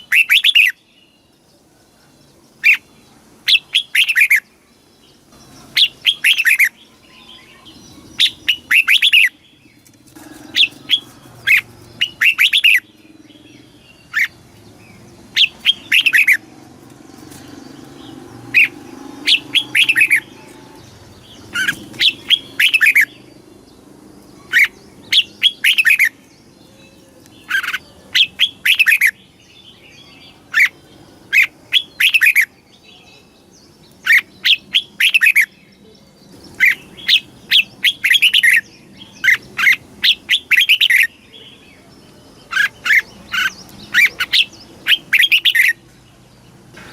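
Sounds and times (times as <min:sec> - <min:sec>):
bird singing short phrases: 0:10.5 - 0:16.4.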